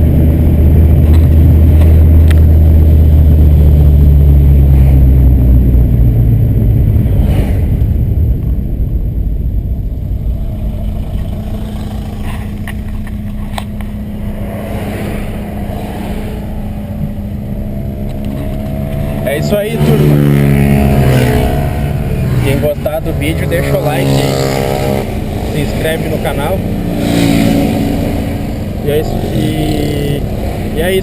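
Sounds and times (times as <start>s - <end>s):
car engine driving: 0.0s - 31.0s.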